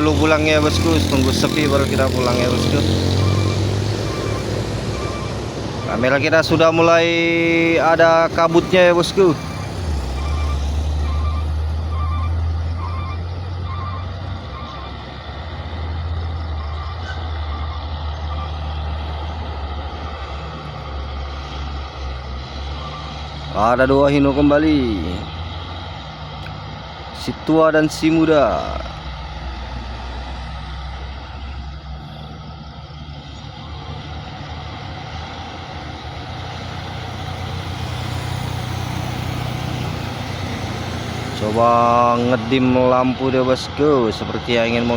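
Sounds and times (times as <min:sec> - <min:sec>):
diesel truck engine idling: 0:00.0 - 0:44.9
electronic alarm beeping: 0:02.5 - 0:06.9, 0:08.4 - 0:14.0.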